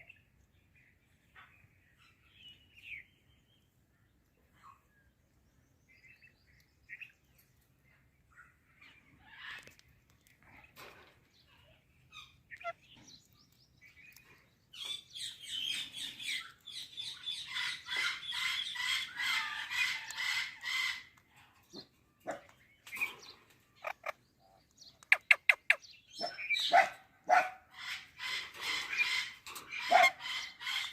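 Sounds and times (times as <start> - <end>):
parakeet chattering and chirping: 11.5 - 21.2, 22.9 - 26.8, 27.7 - 30.9.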